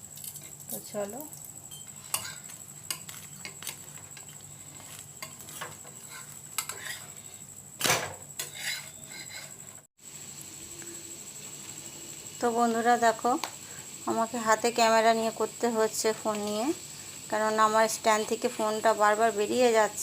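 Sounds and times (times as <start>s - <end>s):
oil sizzling: 0.0s - 7.6s, 8.2s - 20.0s
metal ladle scraping frying pan: 2.0s - 3.6s, 4.2s - 7.4s, 8.4s - 9.7s.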